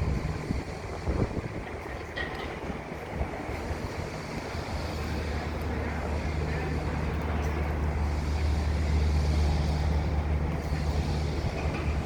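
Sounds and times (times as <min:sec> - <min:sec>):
wind on microphone: 0:00.0 - 0:05.5
low machinery hum: 0:00.0 - 0:12.0.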